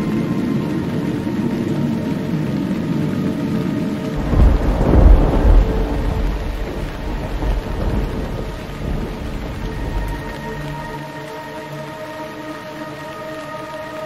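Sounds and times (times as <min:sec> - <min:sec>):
musical drone: 0:00.0 - 0:14.0
thunder rumbling: 0:04.1 - 0:11.1.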